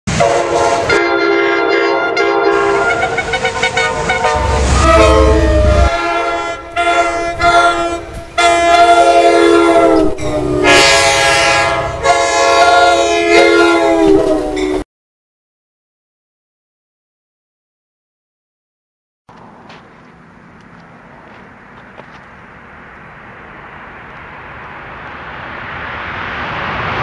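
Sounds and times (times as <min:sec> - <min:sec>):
low train rumble: 0:00.1 - 0:14.8, 0:19.3 - 0:27.0
train air horn blasts: 0:00.1 - 0:14.8.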